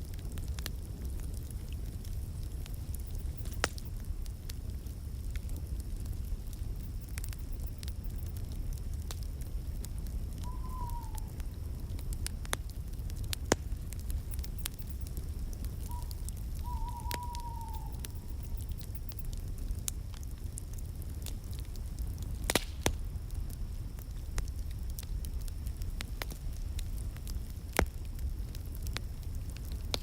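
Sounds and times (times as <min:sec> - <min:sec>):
wood fire crackling and popping: 0:00.0 - 0:30.0
faint wavering whistle: 0:10.4 - 0:11.4, 0:15.8 - 0:18.6.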